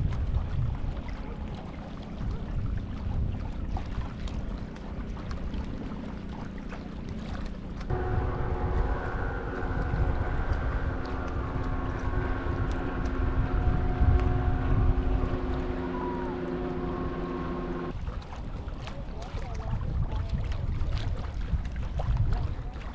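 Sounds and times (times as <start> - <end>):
steady motor hum: 0.0 - 22.9
wind buffeting microphone: 0.0 - 22.9
low rumble: 7.6 - 18.0.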